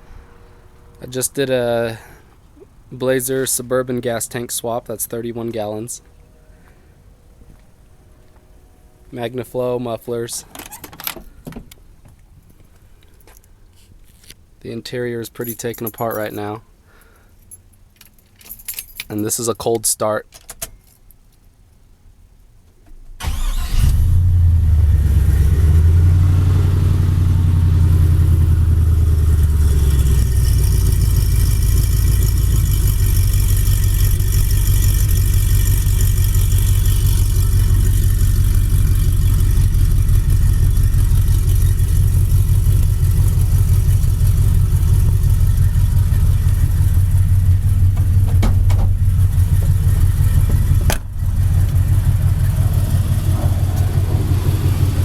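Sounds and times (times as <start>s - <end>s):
engine cranking and starting: 23.2s - 25.8s, 28.0s - 55.0s
engine idling: 24.5s - 55.0s.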